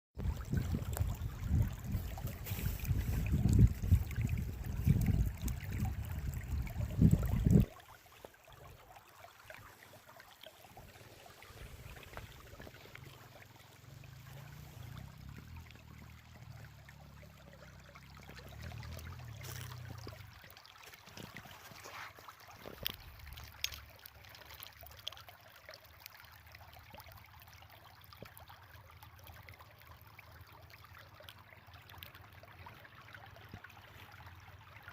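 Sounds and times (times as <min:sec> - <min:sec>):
wind buffeting microphone: 0:00.2 - 0:07.7
brook trickling: 0:00.2 - 0:34.9.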